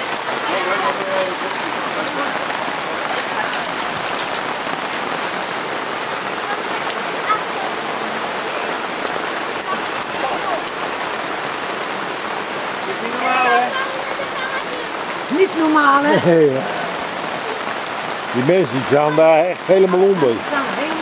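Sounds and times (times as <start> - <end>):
heavy rain on floodwater: 0.0 - 21.0.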